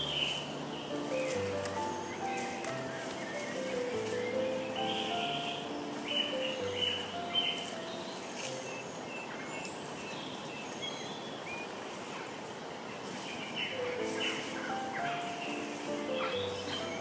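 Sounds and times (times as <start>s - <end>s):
held musical notes: 0.0s - 9.1s, 13.7s - 17.0s
bird chirps: 0.0s - 12.3s, 13.0s - 17.0s
steady hiss: 0.0s - 17.0s.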